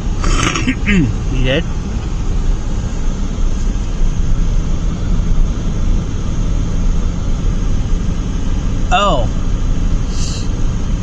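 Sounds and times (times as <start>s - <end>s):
car road and engine rumble: 0.0s - 11.0s
tyre hiss: 10.1s - 10.5s.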